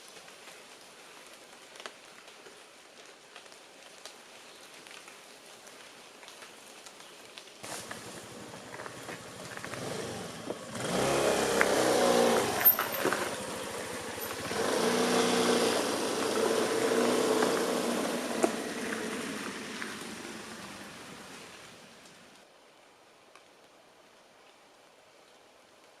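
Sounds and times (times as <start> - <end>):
scooter engine revving: 7.6 - 21.6.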